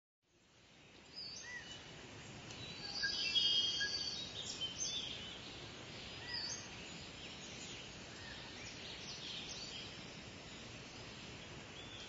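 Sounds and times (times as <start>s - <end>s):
background hiss: 0.3s - 12.0s
small birds chirping: 0.3s - 12.0s.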